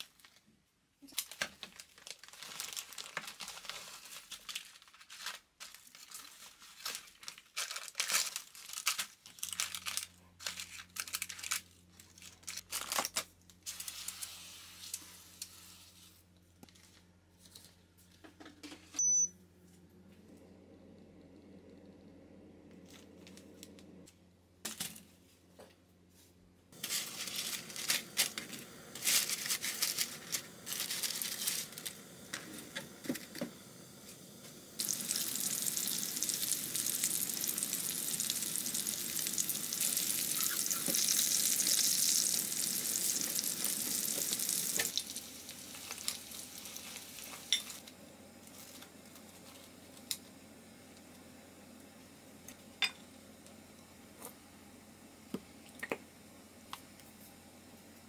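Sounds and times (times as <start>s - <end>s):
food crackling in a pan: 1.0s - 16.1s, 26.8s - 50.3s
loud steady sizzle: 5.6s - 16.2s, 26.7s - 58.0s.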